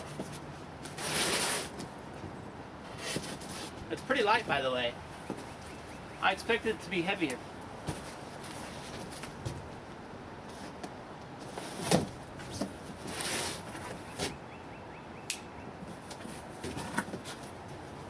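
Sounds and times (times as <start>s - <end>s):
scraping rustle: 0.0s - 2.0s, 2.8s - 3.9s, 7.8s - 9.8s, 10.4s - 14.4s.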